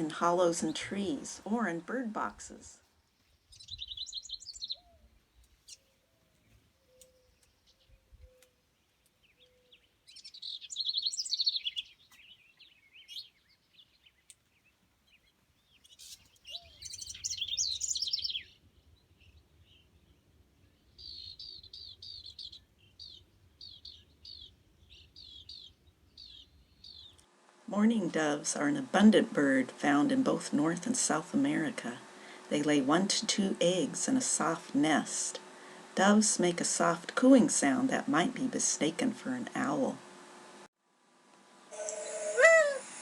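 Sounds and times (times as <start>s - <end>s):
wren singing: 0.0s - 27.2s.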